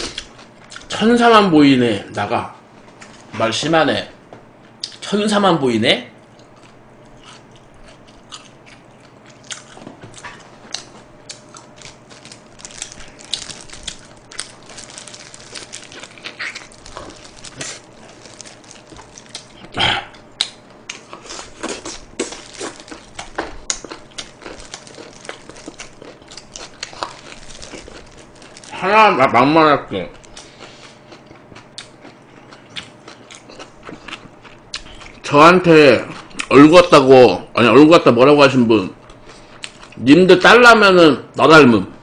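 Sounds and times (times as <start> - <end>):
person biting and chewing chicken: 6.3 - 28.8, 30.1 - 35.3.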